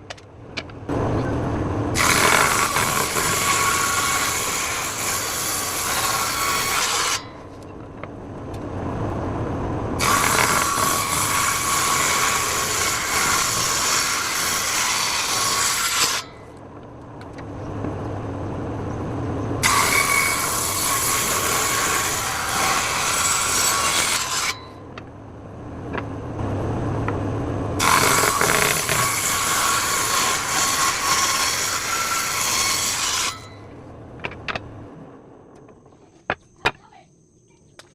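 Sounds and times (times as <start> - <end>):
table saw cutting wood: 1.9 - 7.6, 10.0 - 16.5, 19.6 - 24.8, 27.8 - 33.6
motor hum: 24.8 - 32.4.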